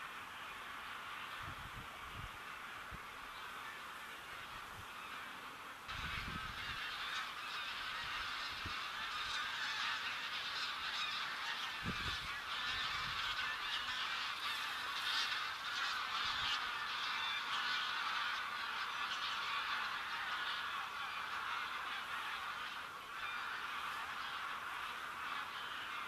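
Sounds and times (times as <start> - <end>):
flock of geese honking: 0.0 - 26.0.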